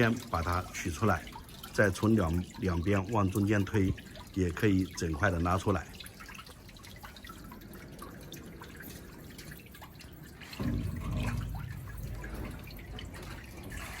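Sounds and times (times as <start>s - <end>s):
water dripping and trickling: 0.0s - 14.0s
low rumble with hum: 10.6s - 14.0s.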